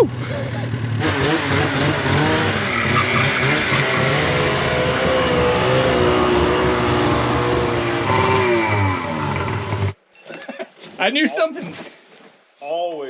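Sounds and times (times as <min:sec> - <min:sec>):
snowmobile engine revving: 0:00.0 - 0:10.0.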